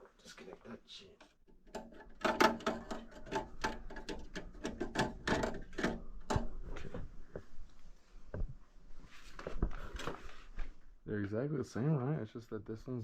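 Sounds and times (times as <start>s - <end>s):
sheet metal clicking and clattering: 1.5s - 6.6s.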